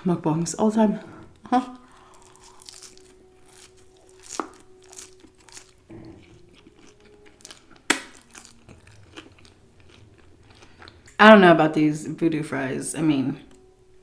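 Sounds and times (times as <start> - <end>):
chewing crispy food: 1.0 - 11.2
small crackles: 1.8 - 5.8.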